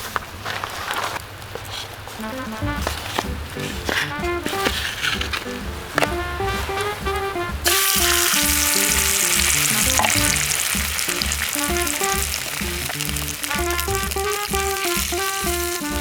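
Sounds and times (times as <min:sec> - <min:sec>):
background music with beat: 0:02.2 - 0:16.0
food sizzling in a pan: 0:07.6 - 0:16.0.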